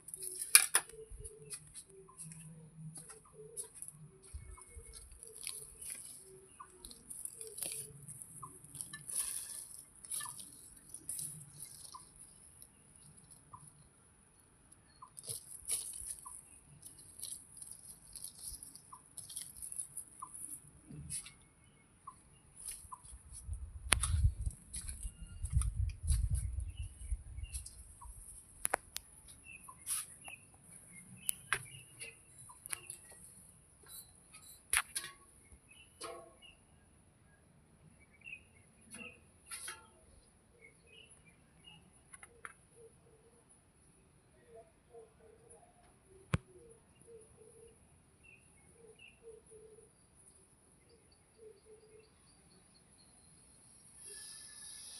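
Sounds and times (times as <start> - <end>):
bird chirps: 0.0 - 13.9, 14.8 - 23.5, 24.1 - 43.5, 44.2 - 54.9
steady high-pitched hiss: 49.1 - 54.9.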